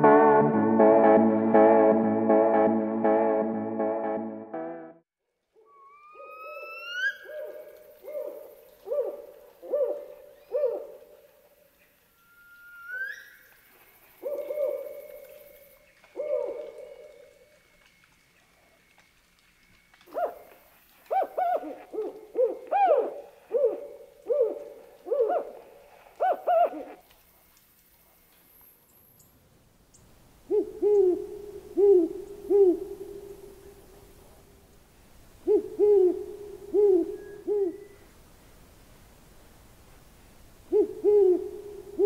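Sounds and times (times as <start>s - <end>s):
rising whistled calls: 5.6s - 8.5s, 12.1s - 18.0s, 36.0s - 38.1s
owl hooting: 5.7s - 11.2s, 12.2s - 13.6s, 14.2s - 17.3s, 20.1s - 27.0s, 30.5s - 34.0s, 35.4s - 38.1s, 40.7s - 42.0s.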